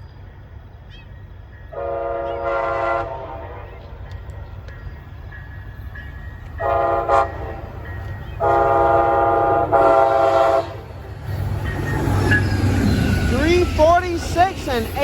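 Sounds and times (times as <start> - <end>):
train rumble: 0.0 - 15.0
locomotive air horn blasts: 1.7 - 3.6, 6.6 - 7.6, 8.4 - 10.9.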